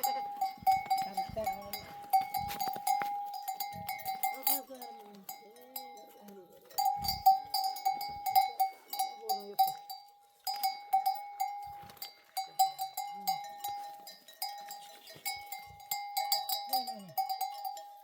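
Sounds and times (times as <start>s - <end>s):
sheep bells clanking: 0.0s - 18.0s.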